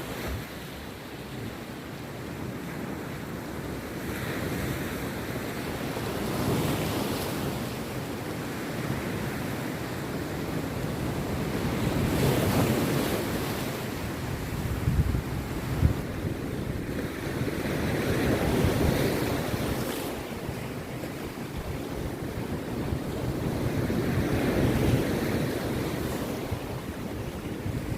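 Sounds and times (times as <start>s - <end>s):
rough surf breaking on beach: 0.0s - 27.9s
wind buffeting microphone: 10.1s - 27.9s.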